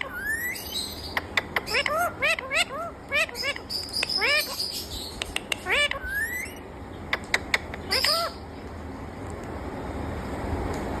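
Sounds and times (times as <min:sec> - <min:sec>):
parrot squeak rising in pitch: 0:00.0 - 0:00.8, 0:01.7 - 0:04.7, 0:05.6 - 0:06.6
parrot calling: 0:00.0 - 0:08.4
sharp clicks: 0:05.2 - 0:05.6.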